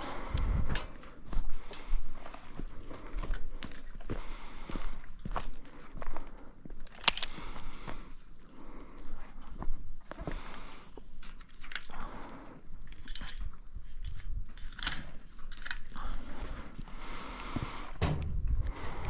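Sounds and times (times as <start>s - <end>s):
footsteps: 0.0s - 8.0s, 13.1s - 19.0s.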